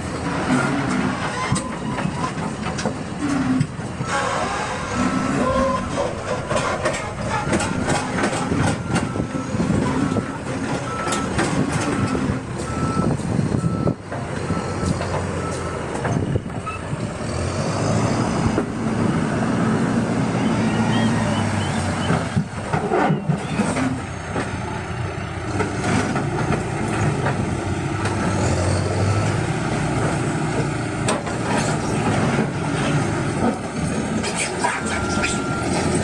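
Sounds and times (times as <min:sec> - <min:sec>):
diesel machinery running: 0:00.0 - 0:36.0
sharp knocks and clatters: 0:06.2 - 0:09.2
reversing alarm beeping: 0:07.0 - 0:16.9, 0:20.4 - 0:22.3, 0:34.8 - 0:36.0.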